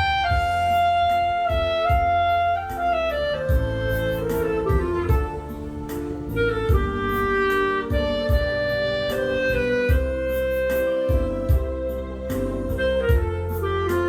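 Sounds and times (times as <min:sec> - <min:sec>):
melody of long held notes: 0:00.0 - 0:14.0
steady beat: 0:00.0 - 0:14.0.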